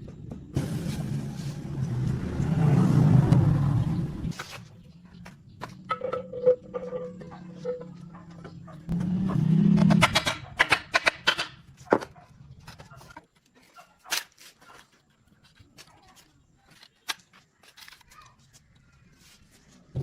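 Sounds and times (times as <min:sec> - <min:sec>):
car engine idling and revving: 0:00.4 - 0:10.6.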